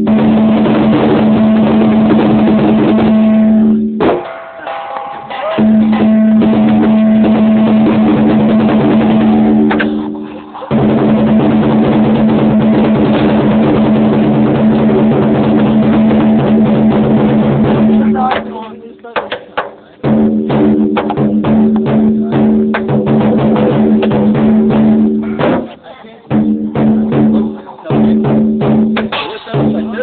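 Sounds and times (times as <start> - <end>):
cymbals crashing: 0.0 - 18.6
drum beating: 0.0 - 30.0.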